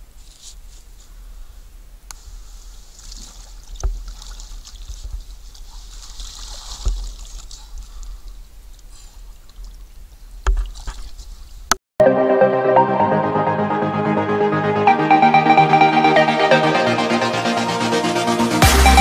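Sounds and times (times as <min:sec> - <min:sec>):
water lapping and trickling: 0:02.2 - 0:11.7.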